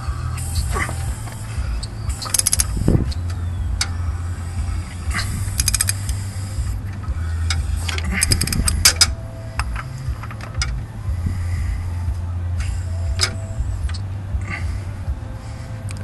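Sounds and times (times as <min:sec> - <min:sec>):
low steady hum: 0:00.0 - 0:16.0
socket ratchet clicking: 0:01.8 - 0:04.0, 0:05.5 - 0:06.2.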